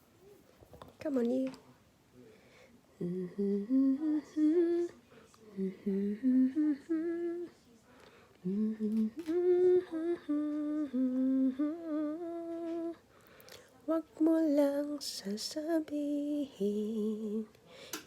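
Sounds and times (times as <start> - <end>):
person humming a slow melody: 2.9 - 5.0, 5.6 - 7.6, 8.4 - 13.0, 15.6 - 17.5.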